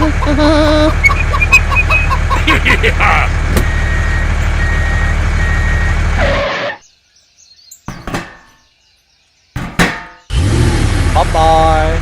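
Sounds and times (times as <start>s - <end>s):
truck engine running: 0.0s - 6.8s, 10.3s - 12.0s
reversing beeper: 3.6s - 6.8s.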